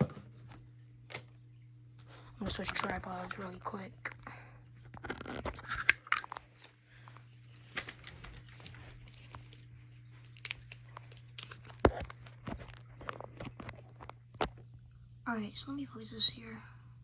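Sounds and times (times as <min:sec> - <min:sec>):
steady low hum: 0:00.0 - 0:17.0
crinkling: 0:02.1 - 0:15.0.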